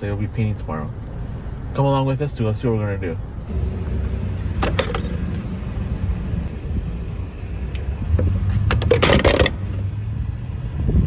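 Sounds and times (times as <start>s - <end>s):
vehicle engine low rumble: 3.2s - 11.0s
rattling: 3.5s - 10.0s.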